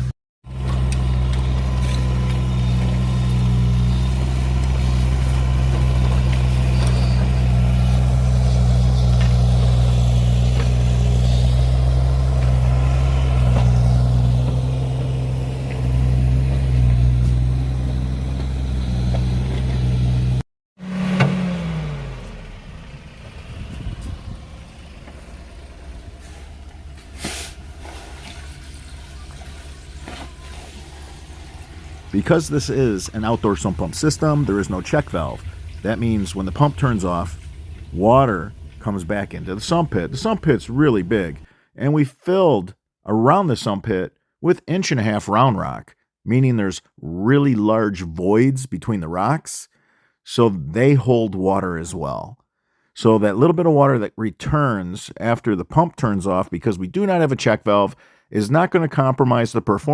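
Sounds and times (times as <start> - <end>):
engine running steadily: 0.0 - 41.5.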